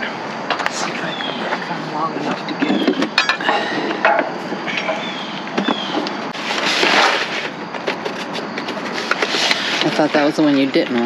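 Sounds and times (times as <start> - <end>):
rustling scrape: 6.3 - 10.7.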